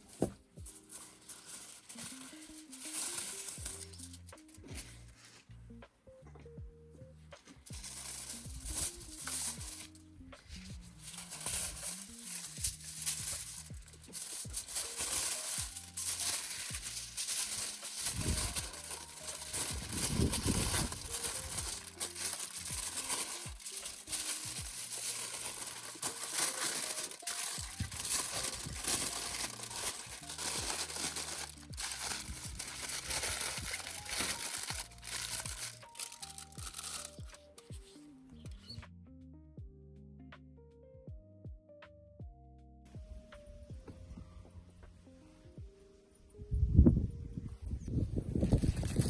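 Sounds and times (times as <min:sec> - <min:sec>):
foil crinkling: 0:00.0 - 0:05.3, 0:07.6 - 0:38.0
soft background music: 0:00.0 - 0:48.5.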